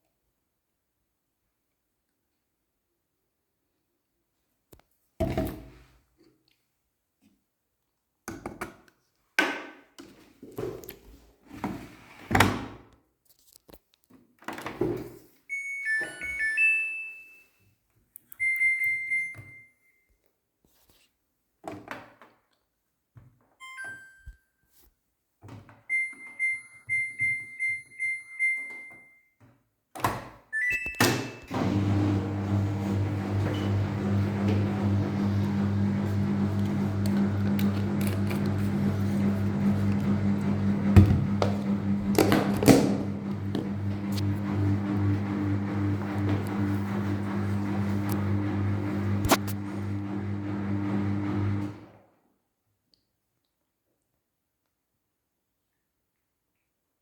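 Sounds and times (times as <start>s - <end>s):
washing machine humming: 31.5s - 51.9s.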